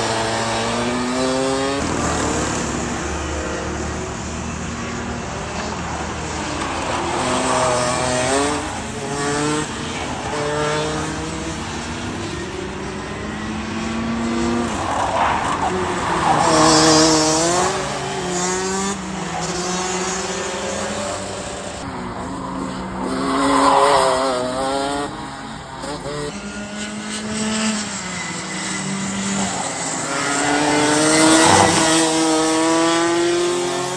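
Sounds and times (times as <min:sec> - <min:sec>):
go-kart engine racing: 0:00.0 - 0:33.9.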